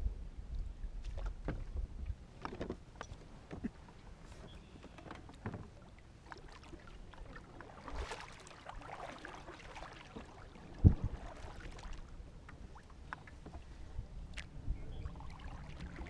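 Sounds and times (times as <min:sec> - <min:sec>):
light splashing water: 0:04.8 - 0:16.0.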